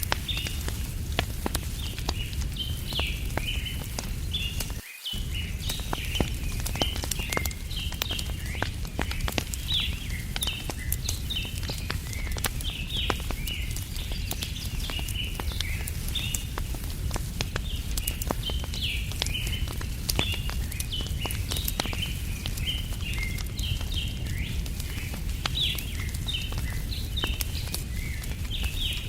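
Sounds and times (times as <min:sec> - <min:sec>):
campfire crackling and popping: 0:00.0 - 0:29.0
low rumble: 0:05.2 - 0:12.9.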